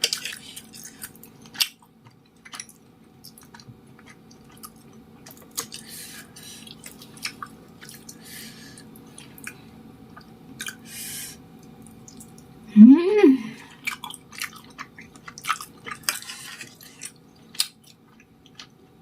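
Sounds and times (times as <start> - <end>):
mouth chewing sounds: 13.7 - 18.8.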